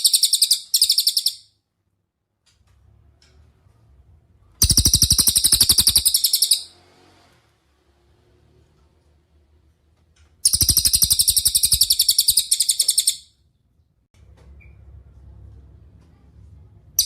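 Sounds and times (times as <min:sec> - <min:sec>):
songbird rattling trill: 0:00.0 - 0:01.4, 0:04.6 - 0:06.7, 0:10.4 - 0:13.3.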